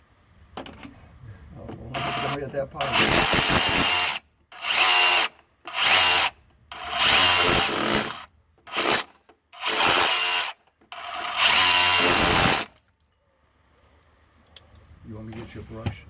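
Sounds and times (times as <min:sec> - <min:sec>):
rotary hammer chipping mortar: 0:02.0 - 0:04.2, 0:06.8 - 0:10.4, 0:11.0 - 0:12.8.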